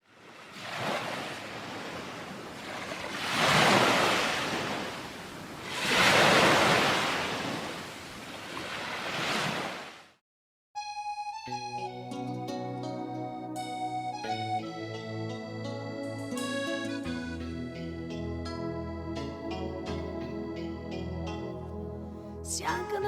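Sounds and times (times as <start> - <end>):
waves washing ashore: 0.0 - 10.2.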